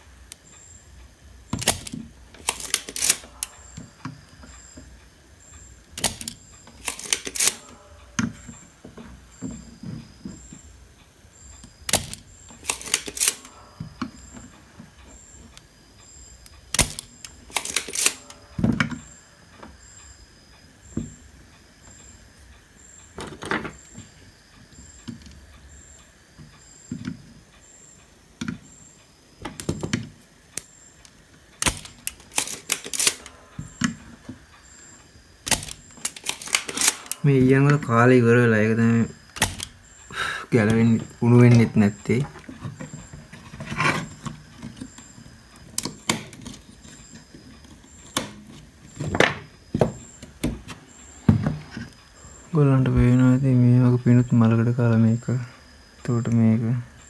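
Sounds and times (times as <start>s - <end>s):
hand tools clicking and tapping: 0.0s - 5.0s, 5.8s - 10.7s, 11.6s - 15.7s, 16.4s - 19.8s, 29.4s - 34.8s, 35.4s - 38.0s, 38.9s - 52.0s.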